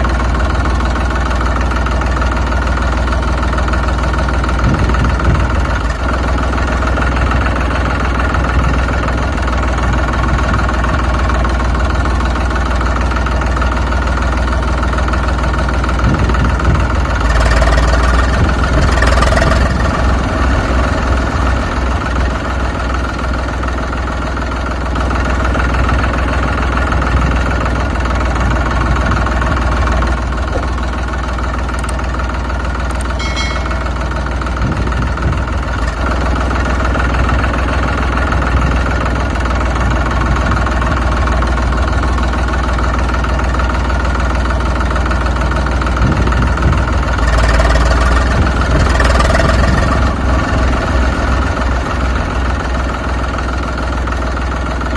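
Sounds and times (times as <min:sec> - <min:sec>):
tractor engine idling: 0:00.0 - 0:54.9
brief high-pitched tone: 0:33.2 - 0:34.4.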